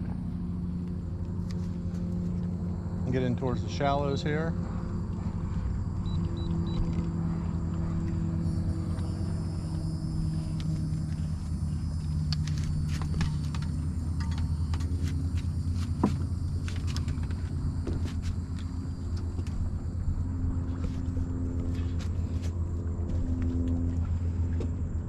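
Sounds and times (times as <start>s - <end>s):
boat motor running: 0.0s - 25.0s.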